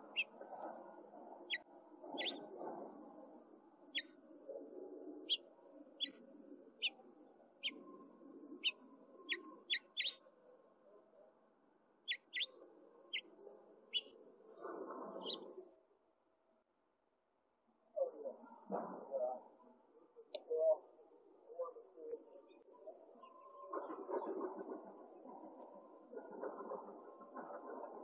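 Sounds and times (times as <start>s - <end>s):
small bird chirping: 0.0s - 0.4s, 2.2s - 2.4s, 5.3s - 6.2s, 8.6s - 10.2s, 12.1s - 12.5s, 13.9s - 14.2s.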